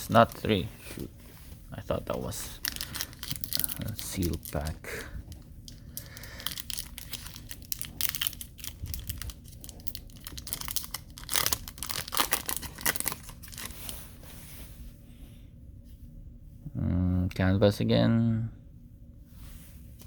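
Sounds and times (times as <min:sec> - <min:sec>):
foil wrapper crinkling and tearing: 0:02.1 - 0:05.1, 0:05.7 - 0:14.0.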